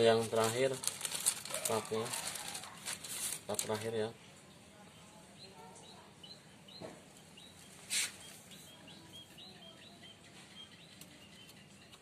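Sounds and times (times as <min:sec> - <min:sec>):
rustling handling noise: 0:00.0 - 0:04.0
small birds chirping: 0:01.6 - 0:12.0.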